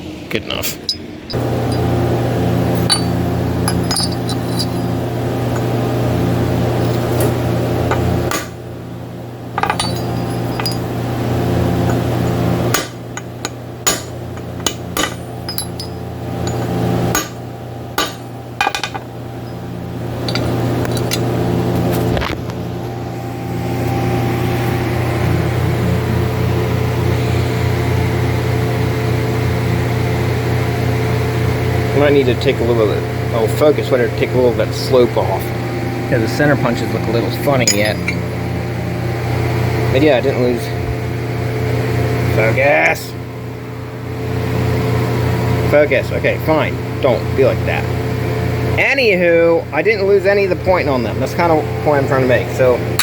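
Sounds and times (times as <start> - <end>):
electrical hum: 0.0 - 53.0
hammer striking metal punch: 2.7 - 5.7, 7.0 - 8.6, 9.6 - 10.9, 12.7 - 19.1, 37.6 - 38.3.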